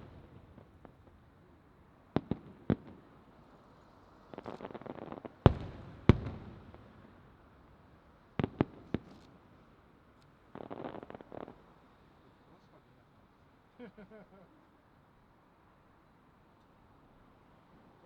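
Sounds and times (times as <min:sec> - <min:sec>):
firework crackling: 0:00.0 - 0:01.0.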